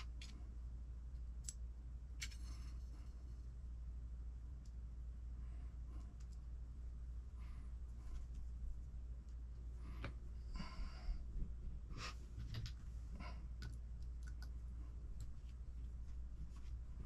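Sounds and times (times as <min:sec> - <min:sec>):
low hum: 0:00.0 - 0:17.0
small parts clicking: 0:02.2 - 0:02.6.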